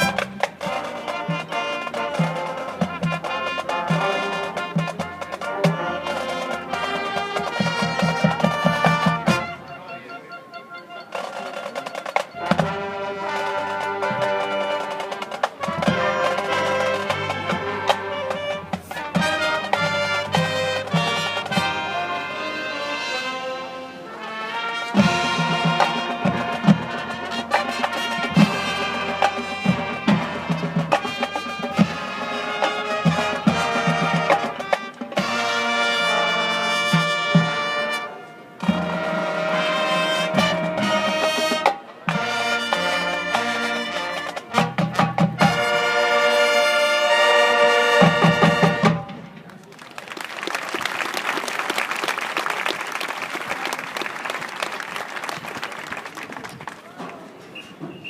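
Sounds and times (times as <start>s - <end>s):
drumline hits: 0.0s - 9.8s, 11.1s - 22.6s, 24.5s - 49.5s
marching band brass chords: 0.0s - 49.6s
crowd applauding: 49.5s - 57.3s.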